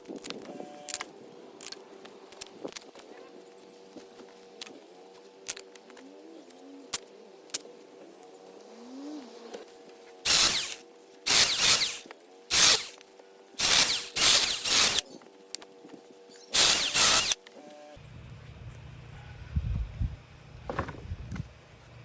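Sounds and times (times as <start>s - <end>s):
power tool motor humming: 10.2s - 15.2s, 16.5s - 18.0s
wood cutting bursts: 10.3s - 13.0s, 13.6s - 15.1s, 16.6s - 17.8s.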